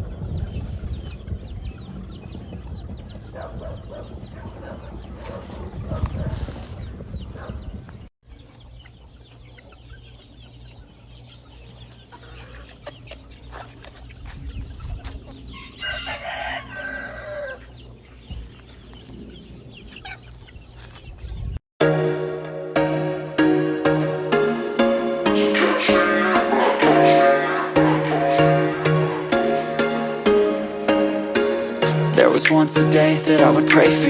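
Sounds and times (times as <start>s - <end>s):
chickens clucking: 0.0s - 21.6s
rooster crowing: 15.5s - 17.6s
music: 21.8s - 34.0s.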